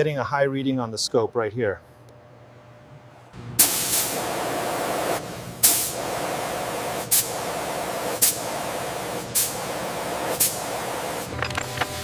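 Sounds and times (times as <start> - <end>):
pressurised jet spraying: 3.6 - 11.3.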